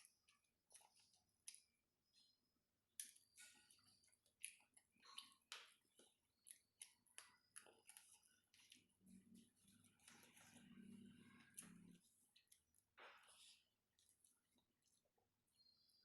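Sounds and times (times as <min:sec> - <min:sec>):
chewing mouth clicks and smacks: 0:02.9 - 0:12.6.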